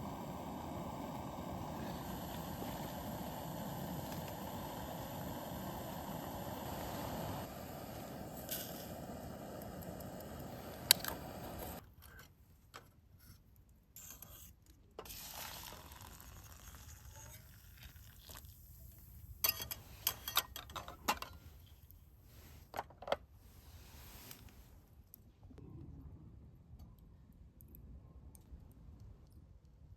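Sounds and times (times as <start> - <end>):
steady hiss: 0.0 - 11.8.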